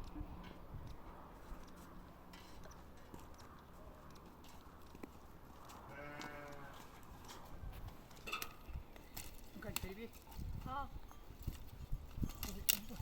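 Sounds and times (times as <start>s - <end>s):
sheep bleating: 5.9s - 6.8s.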